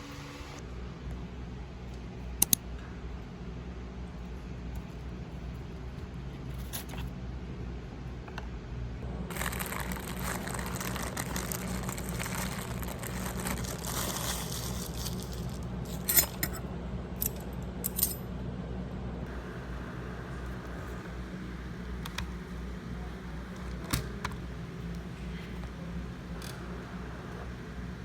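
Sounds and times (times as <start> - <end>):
steady low hum: 0.0 - 28.0
rustling: 9.3 - 16.1.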